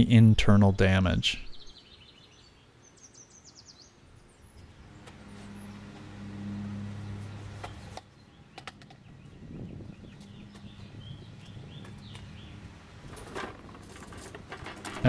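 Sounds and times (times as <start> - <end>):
small bird chirping: 1.4 - 5.9, 6.9 - 12.6
low engine-like hum: 4.1 - 15.0.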